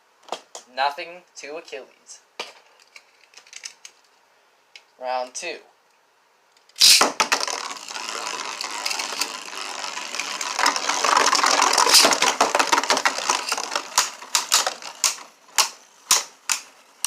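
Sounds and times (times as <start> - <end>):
spinning tops whirring and clattering: 6.8 - 17.0.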